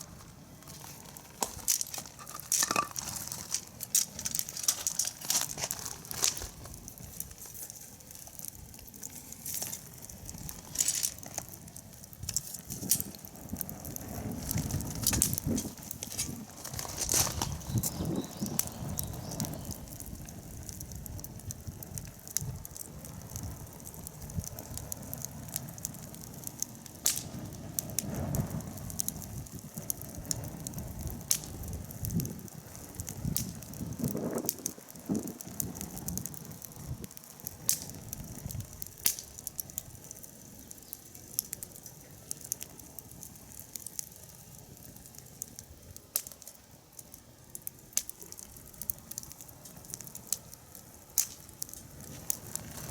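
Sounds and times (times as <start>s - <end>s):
low rush of flame: 0.0s - 52.9s
wood fire crackling: 0.0s - 52.9s.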